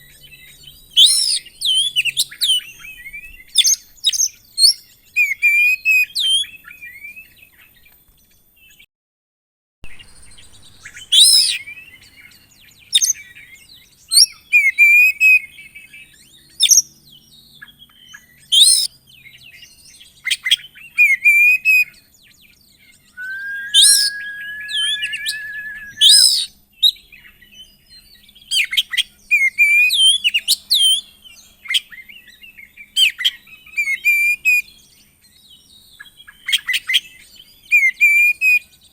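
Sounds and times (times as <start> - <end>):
bird whistling and chirping: 23.2 - 26.5.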